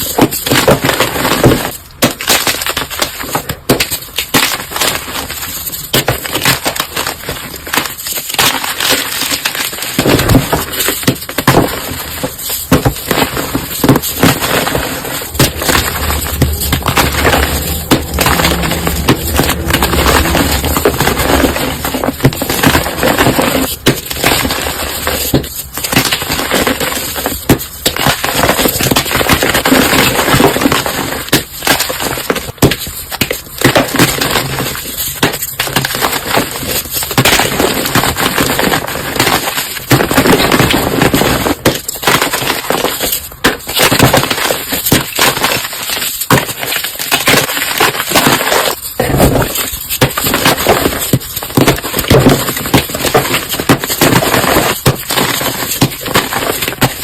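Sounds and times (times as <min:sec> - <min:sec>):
objects being crushed: 0:00.0 - 0:57.0.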